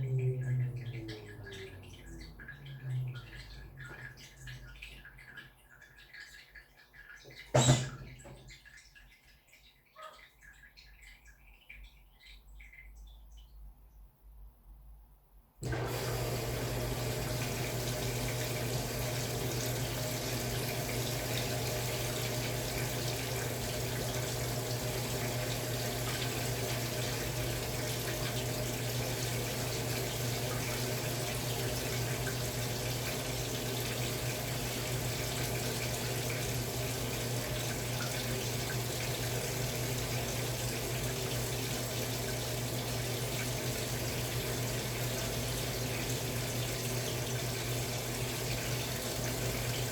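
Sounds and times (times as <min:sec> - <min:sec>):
water filling washing machine: 0:00.0 - 0:12.9, 0:15.6 - 0:49.9.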